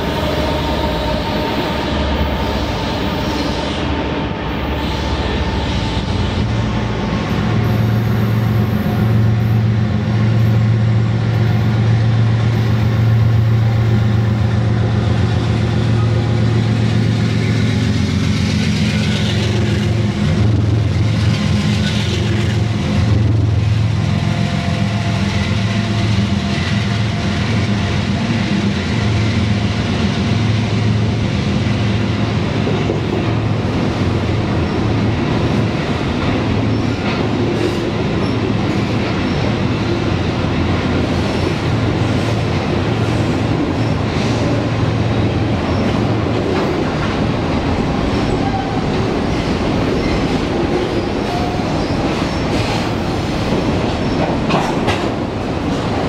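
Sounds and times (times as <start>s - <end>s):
train wheels and cars rolling: 0.0s - 56.0s.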